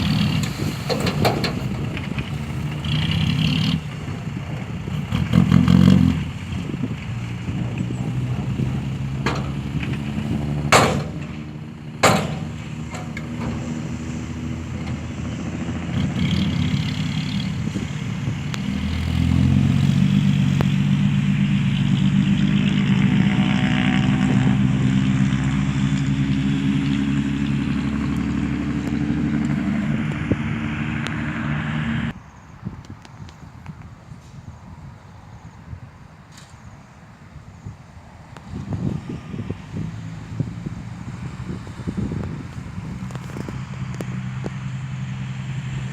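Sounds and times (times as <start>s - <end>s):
truck diesel engine running: 0.0s - 32.1s
sharp bangs: 10.7s - 11.4s, 12.0s - 13.7s.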